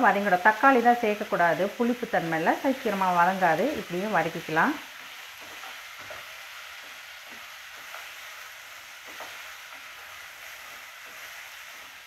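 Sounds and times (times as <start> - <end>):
vegetables sizzling: 0.0 - 12.0
wooden spatula stirring and scraping: 4.9 - 12.0.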